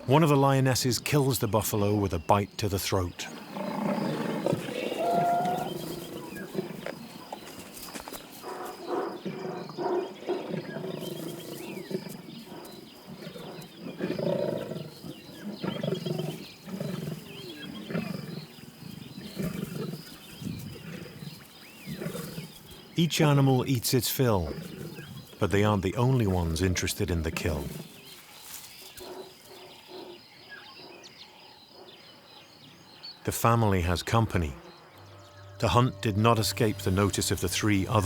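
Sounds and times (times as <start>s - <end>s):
lions growling and snarling: 3.3s - 23.5s, 24.2s - 33.0s.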